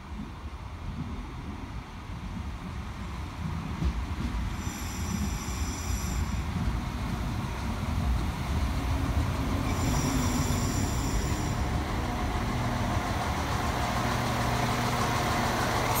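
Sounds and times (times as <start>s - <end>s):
train rumbling: 0.0s - 16.0s
faint high squeal: 4.6s - 6.5s, 9.6s - 11.7s.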